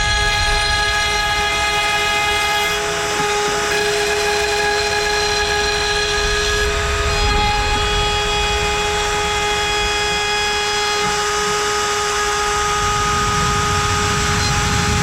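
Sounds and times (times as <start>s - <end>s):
cutter milling wood: 0.0s - 15.0s
router spindle whining: 0.0s - 15.0s.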